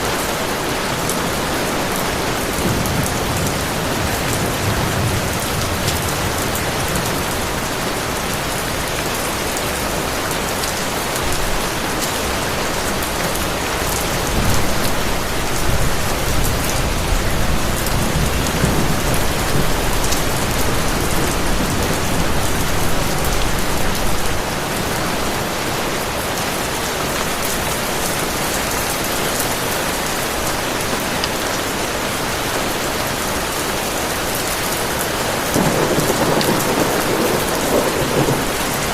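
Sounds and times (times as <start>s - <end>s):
heavy rain falling: 0.0s - 38.9s
low thunder rumble: 14.2s - 24.6s, 35.4s - 38.9s.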